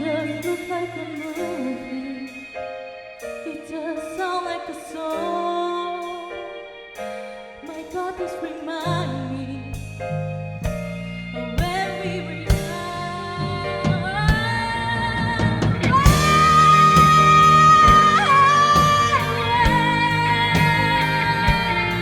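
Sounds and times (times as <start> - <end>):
live band music: 0.0 - 3.5, 9.7 - 22.0
person singing: 0.0 - 6.6, 11.6 - 22.0.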